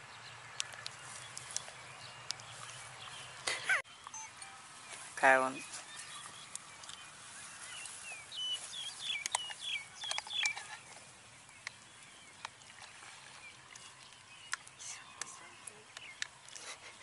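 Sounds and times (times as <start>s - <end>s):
bird chirping high notes: 3.9s - 5.6s.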